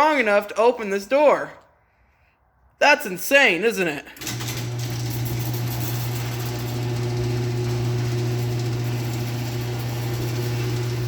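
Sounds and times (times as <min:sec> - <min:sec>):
garage door opener humming: 0:04.2 - 0:11.0.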